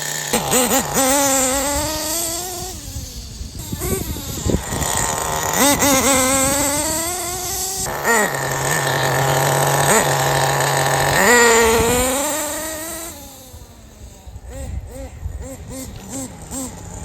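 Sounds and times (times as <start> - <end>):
model nitro engine revving: 0.0 - 17.0.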